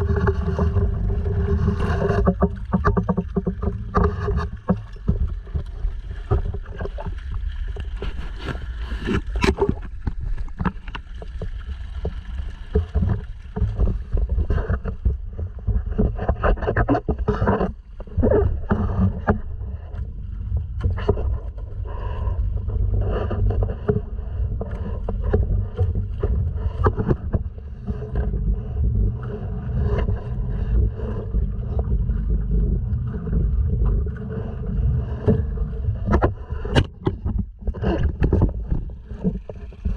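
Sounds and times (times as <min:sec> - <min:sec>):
splashes and knocks on kayak hull: 0:00.0 - 0:39.9
wind and water rumble: 0:00.0 - 0:39.9.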